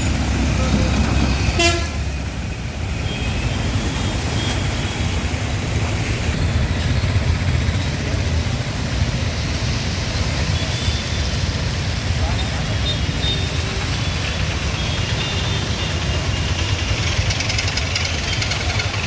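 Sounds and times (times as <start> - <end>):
street traffic passing: 0.0 - 19.0.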